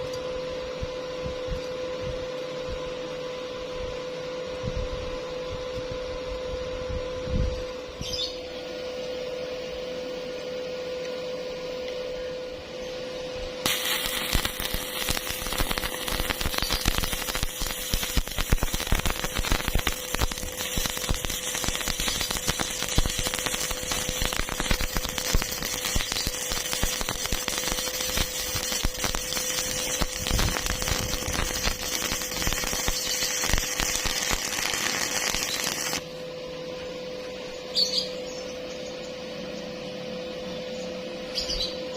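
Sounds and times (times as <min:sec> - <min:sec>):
steady hum: 0:00.0 - 0:41.9
welding arc crackling: 0:13.6 - 0:36.0.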